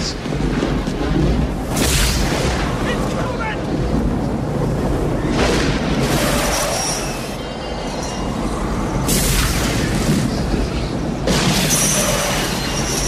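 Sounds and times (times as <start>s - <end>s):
rush of wind: 0.0s - 13.0s
high screeching tones: 6.0s - 9.4s.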